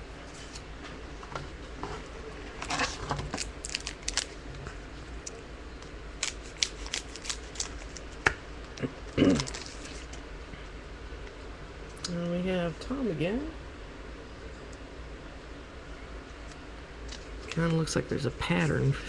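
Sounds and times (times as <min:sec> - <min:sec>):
cards clicking and rustling: 0:02.6 - 0:04.4, 0:06.2 - 0:08.8, 0:09.4 - 0:10.2.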